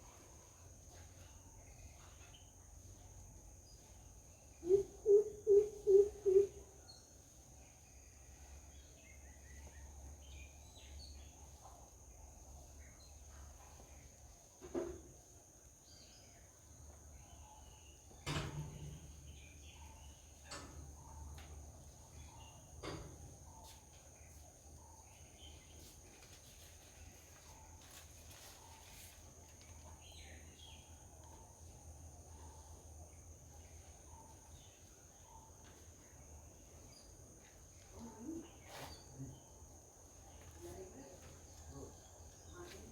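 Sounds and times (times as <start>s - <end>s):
soft bird chirps: 15.9s - 39.6s.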